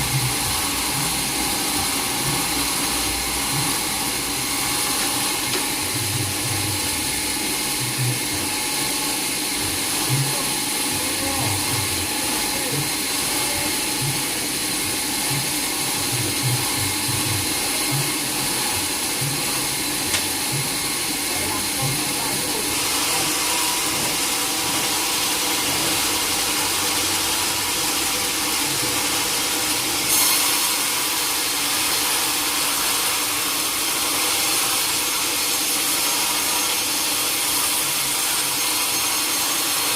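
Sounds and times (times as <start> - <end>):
sawmill saw running: 0.0 - 39.9.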